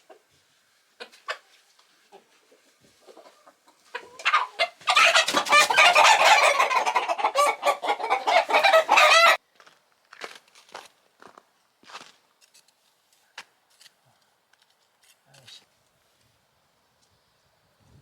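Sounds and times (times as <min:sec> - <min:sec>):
chickens clucking and squawking: 0:00.0 - 0:09.4.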